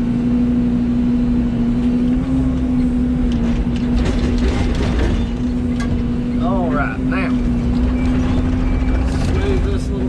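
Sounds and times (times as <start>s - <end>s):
diesel engine humming: 0.0s - 10.0s
metal clanks and rattles: 3.3s - 6.5s, 7.2s - 10.0s.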